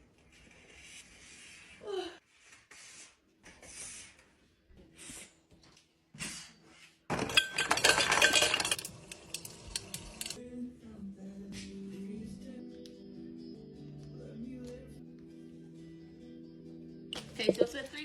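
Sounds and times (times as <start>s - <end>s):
hard objects clinking and clattering: 7.1s - 10.4s.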